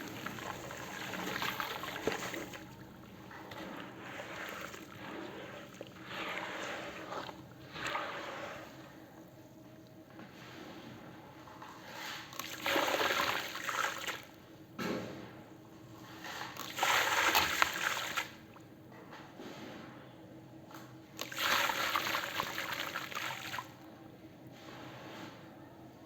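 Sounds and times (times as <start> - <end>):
concrete being poured: 0.0 - 9.2, 16.1 - 18.4, 21.2 - 23.8.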